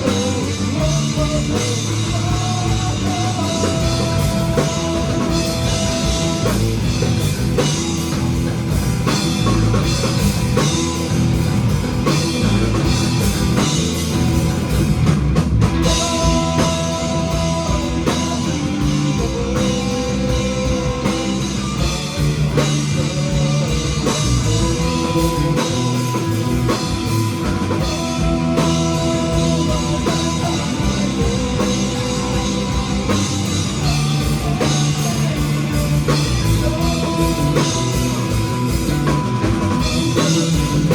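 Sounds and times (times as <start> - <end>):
rock band playing instrumental: 0.0 - 40.9.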